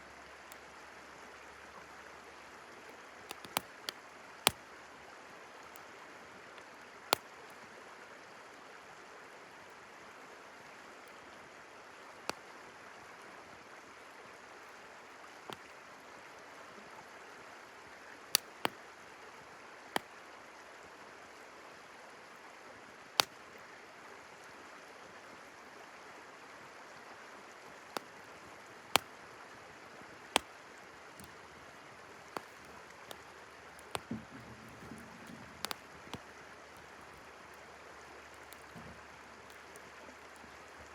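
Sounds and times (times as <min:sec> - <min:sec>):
campfire crackling and popping: 0:02.8 - 0:04.7, 0:07.1 - 0:07.4, 0:15.3 - 0:15.7, 0:18.3 - 0:18.8, 0:23.2 - 0:23.4, 0:27.9 - 0:29.4, 0:30.0 - 0:40.9.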